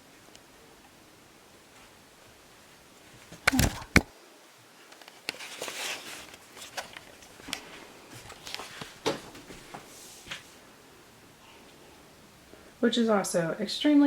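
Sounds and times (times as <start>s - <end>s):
rustling: 4.7s - 10.7s.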